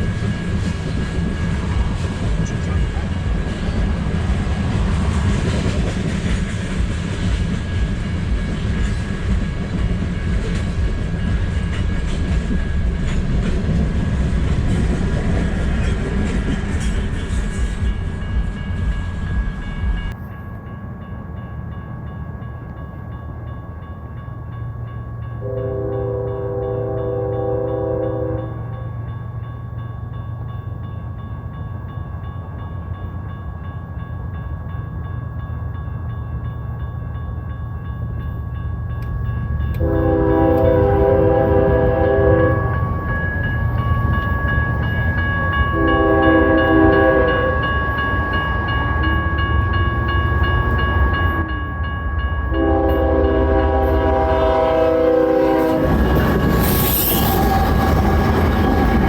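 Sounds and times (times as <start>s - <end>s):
locomotive engine and wheel noise: 0.0s - 25.3s, 28.9s - 59.0s
train rumbling: 0.0s - 59.0s
locomotive air horn blasts: 25.4s - 28.8s, 39.8s - 42.8s, 45.8s - 47.7s, 52.6s - 56.0s.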